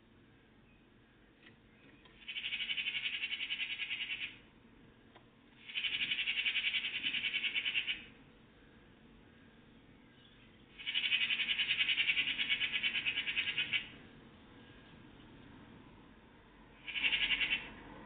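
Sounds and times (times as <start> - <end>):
songbird trilling: 2.0 - 4.4, 5.6 - 8.1, 10.1 - 14.0, 16.8 - 17.7.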